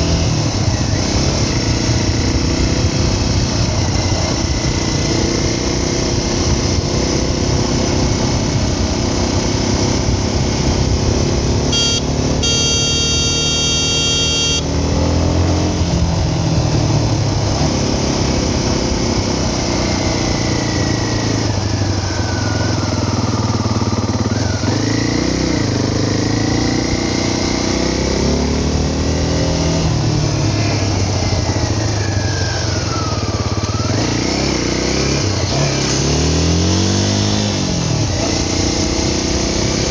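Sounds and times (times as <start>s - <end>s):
motorcycle engine revving: 0.0s - 39.9s
high pitched tone: 11.7s - 15.0s.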